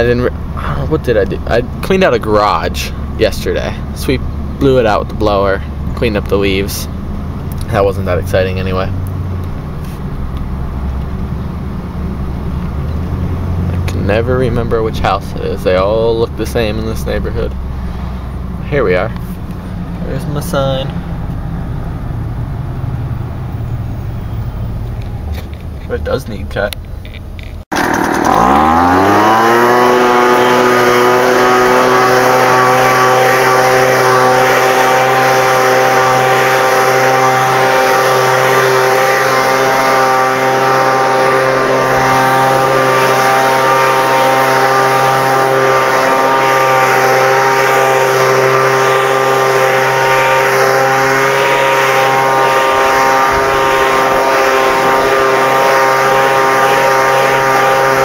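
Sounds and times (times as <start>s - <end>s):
lawn mower engine revving: 27.7s - 58.0s.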